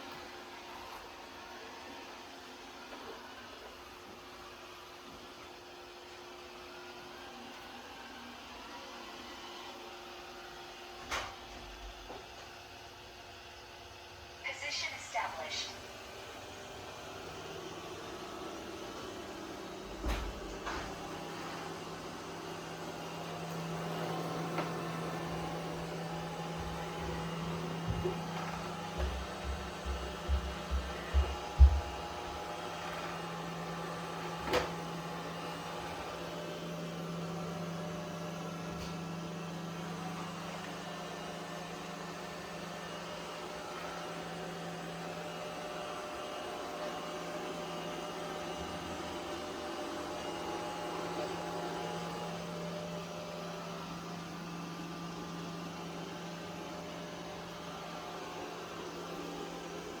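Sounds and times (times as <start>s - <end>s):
robot vacuum motor humming: 15.5s - 60.0s.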